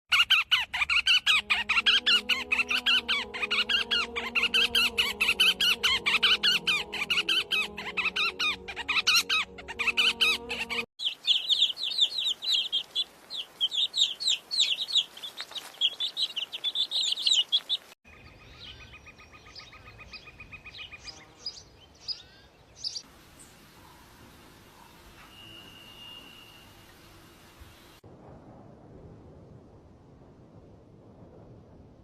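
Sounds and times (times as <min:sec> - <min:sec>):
buzzy bird trill: 0:00.1 - 0:17.8
small bird chirping: 0:00.1 - 0:24.0.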